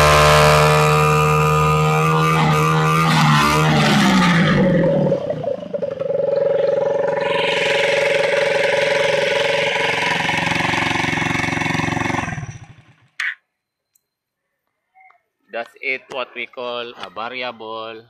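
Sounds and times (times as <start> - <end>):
small motorcycle engine revving: 0.0 - 13.2.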